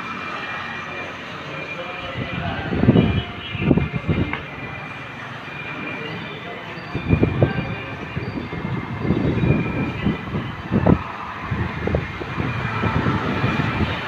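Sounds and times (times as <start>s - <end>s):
storm wind buffeting microphone: 2.0s - 4.8s, 6.8s - 14.0s.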